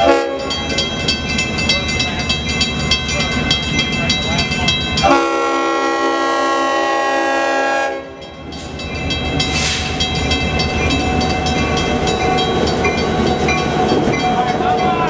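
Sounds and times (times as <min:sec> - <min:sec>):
locomotive horn blast: 0:00.0 - 0:00.5, 0:05.0 - 0:08.2
train running noise: 0:00.0 - 0:15.0.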